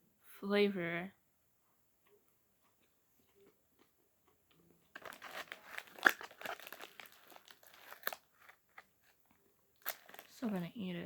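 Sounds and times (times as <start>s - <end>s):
plastic packaging crinkling: 4.9s - 9.2s, 9.8s - 10.8s.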